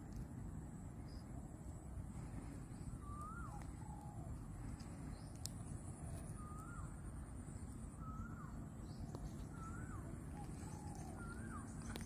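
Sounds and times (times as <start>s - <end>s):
faint high whine: 0.0s - 12.0s
fainter lower bird calls: 0.0s - 12.0s
bird calling rising note: 2.5s - 12.0s.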